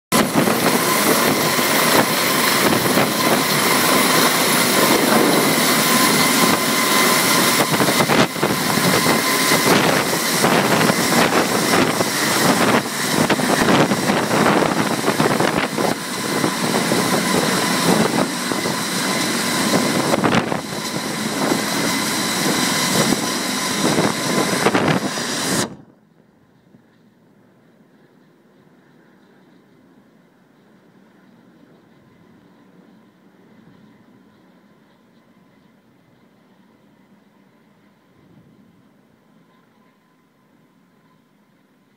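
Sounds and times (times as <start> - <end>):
helicopter rotor and turbine: 0.1 - 41.9
high turbine whine: 0.1 - 41.9.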